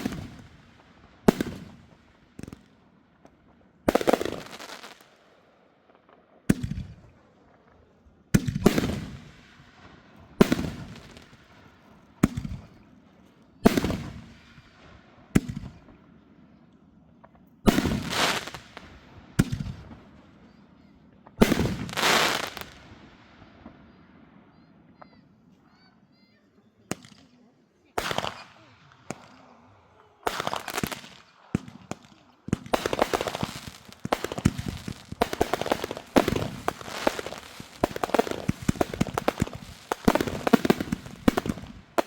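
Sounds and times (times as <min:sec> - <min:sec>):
fireworks bangs: 0:00.0 - 0:02.7, 0:03.3 - 0:05.1, 0:08.3 - 0:12.8, 0:13.6 - 0:15.9, 0:17.2 - 0:25.2, 0:28.0 - 0:29.6, 0:30.2 - 0:42.0.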